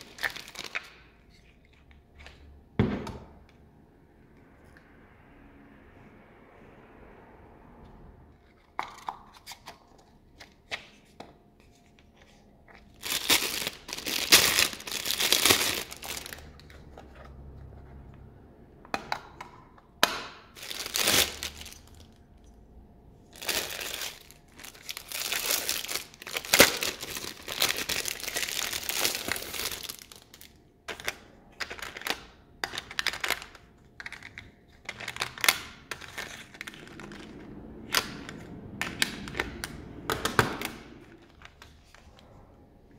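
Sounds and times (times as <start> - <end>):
packaging crinkling and tearing: 0.0 - 2.4, 9.0 - 17.6, 20.5 - 22.2, 23.3 - 42.2.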